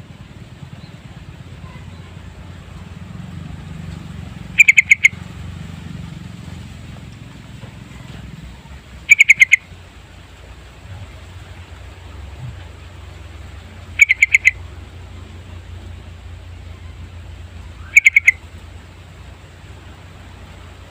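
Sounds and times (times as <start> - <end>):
bulbul singing: 0.0 - 5.9, 7.8 - 10.1, 11.9 - 20.3
low steady rumble: 0.0 - 20.9.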